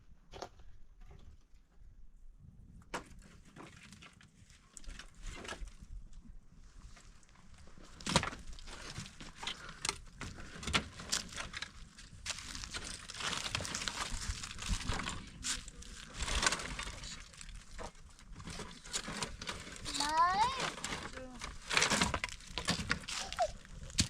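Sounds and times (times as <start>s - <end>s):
rustling: 6.7s - 24.0s
irregular cracks and knocks: 20.7s - 23.2s.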